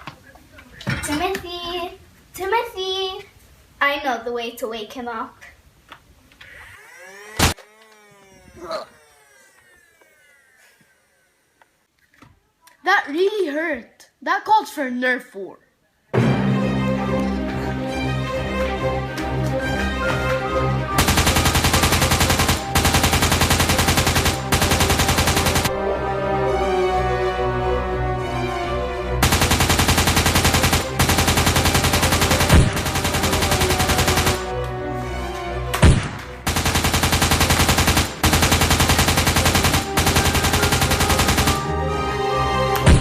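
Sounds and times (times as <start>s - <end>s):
background music: 16.1s - 43.0s
automatic gunfire bursts: 21.0s - 25.7s, 29.2s - 34.5s, 35.8s - 41.7s
machine gun fire: 21.0s - 25.8s, 29.2s - 34.5s, 35.8s - 41.8s.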